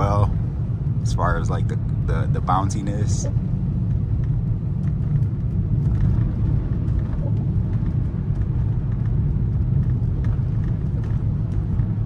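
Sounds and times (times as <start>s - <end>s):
road and tyre rumble in car: 0.0s - 12.0s.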